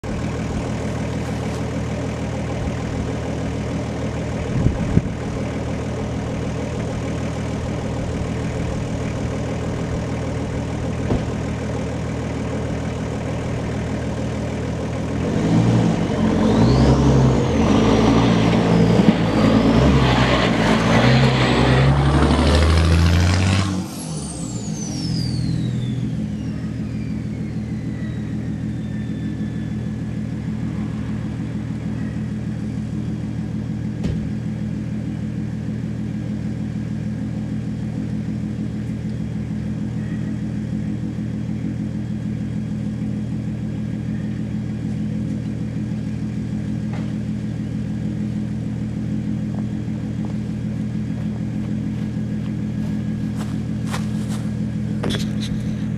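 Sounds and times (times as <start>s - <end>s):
high whine: 0.0s - 35.3s
diesel engine idling: 0.0s - 55.9s.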